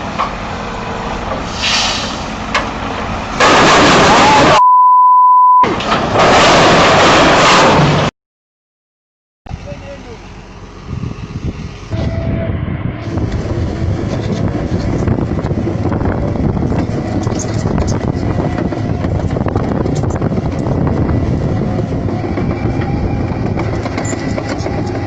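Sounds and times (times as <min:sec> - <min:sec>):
large vehicle engine rumbling: 0:00.0 - 0:04.6, 0:09.5 - 0:25.0
rattling and clanking: 0:22.3 - 0:25.0.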